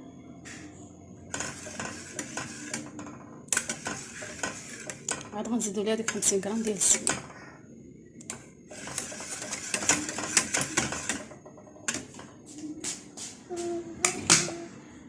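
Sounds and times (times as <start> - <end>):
utensil stirring in metal saucepan: 1.3 - 7.4, 8.2 - 12.6.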